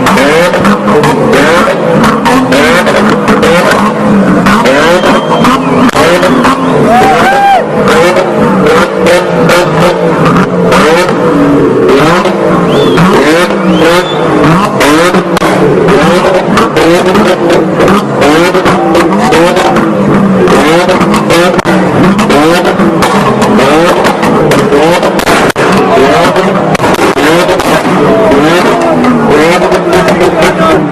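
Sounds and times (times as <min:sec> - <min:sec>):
car engine revving: 0:00.0 - 0:30.9
exhaust popping and cracking: 0:00.0 - 0:30.9.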